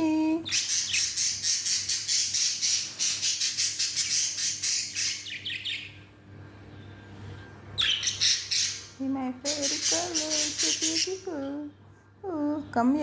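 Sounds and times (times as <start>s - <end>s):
budgerigars squawking: 0.5s - 5.9s, 7.8s - 11.2s.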